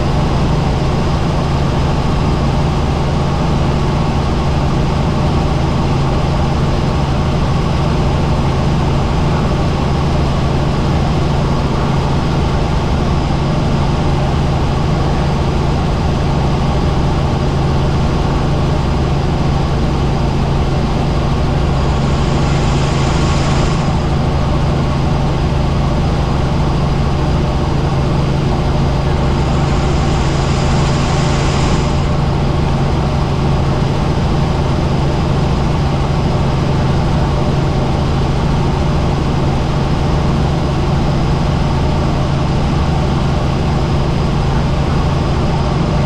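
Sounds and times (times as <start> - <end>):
helicopter engine and rotor drone: 0.0 - 46.0
brief hiss: 29.4 - 32.2.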